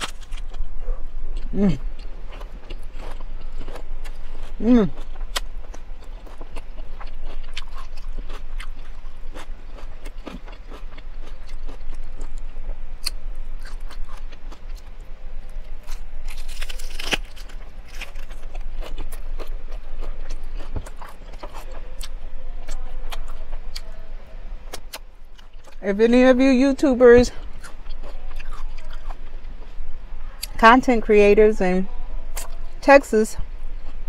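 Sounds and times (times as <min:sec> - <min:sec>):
lettuce crunching: 0:00.0 - 0:23.9, 0:27.3 - 0:29.5.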